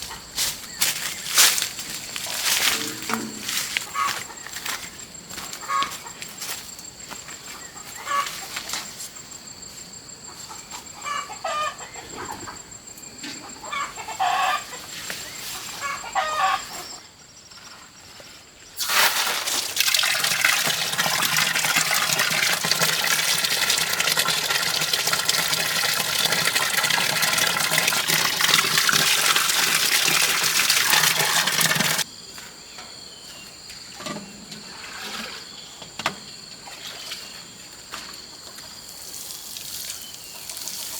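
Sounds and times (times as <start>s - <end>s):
chickens clucking: 2.2s - 6.5s, 7.5s - 8.7s, 10.2s - 17.0s.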